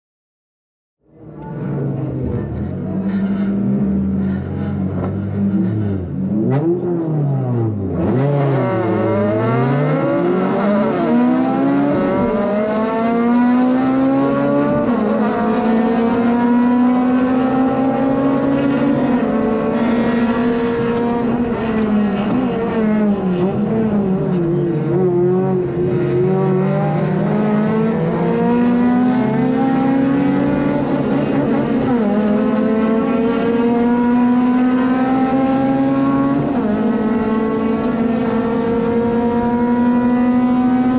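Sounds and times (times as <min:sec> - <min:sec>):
car engine revving through gear shifts: 0:04.2 - 0:40.9.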